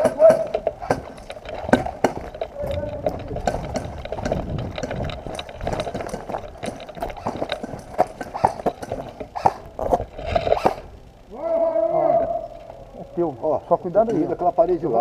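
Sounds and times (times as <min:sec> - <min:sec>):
footsteps: 0:00.0 - 0:10.9
gear knocking and clicking: 0:00.0 - 0:11.3.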